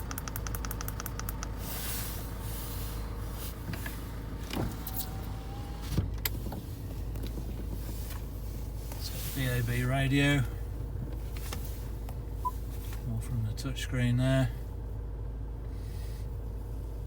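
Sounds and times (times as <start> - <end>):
sharp clicks: 0.0 - 1.6
car interior hum: 0.0 - 17.0.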